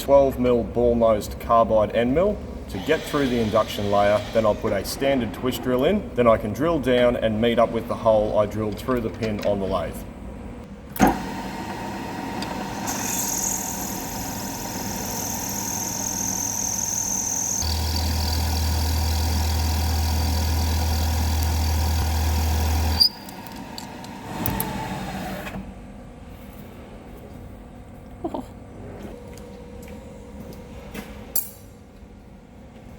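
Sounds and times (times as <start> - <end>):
milling machine high whine: 11.2 - 25.5.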